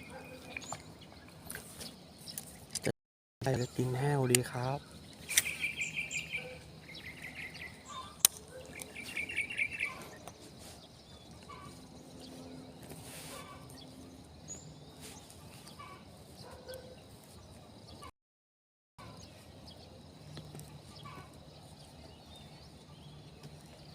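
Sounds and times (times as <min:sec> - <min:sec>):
bird chirping trills: 0:00.0 - 0:02.8, 0:03.4 - 0:18.1, 0:19.0 - 0:23.9
faint outdoor background: 0:00.0 - 0:18.1, 0:19.0 - 0:23.9
sharp click: 0:05.3 - 0:05.6.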